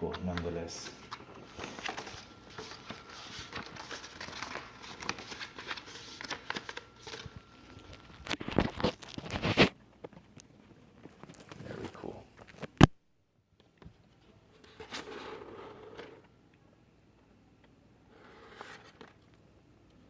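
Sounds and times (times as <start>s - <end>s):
paper and packaging rustling: 0.0s - 12.8s.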